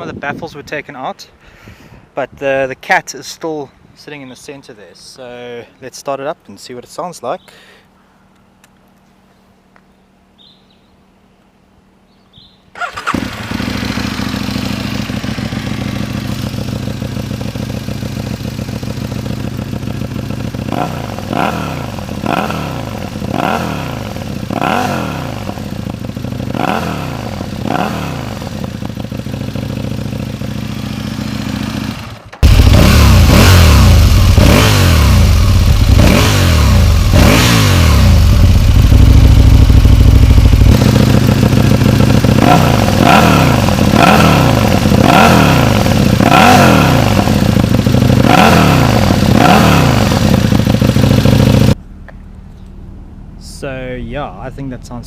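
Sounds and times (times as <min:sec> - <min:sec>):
motorcycle engine revving: 0:12.8 - 0:51.8.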